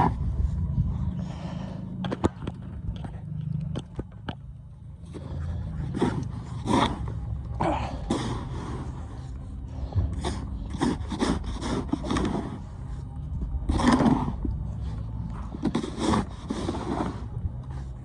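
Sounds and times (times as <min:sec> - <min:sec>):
steady low rumble: 0:00.0 - 0:18.0
snow shovel scraping snow: 0:15.6 - 0:17.3.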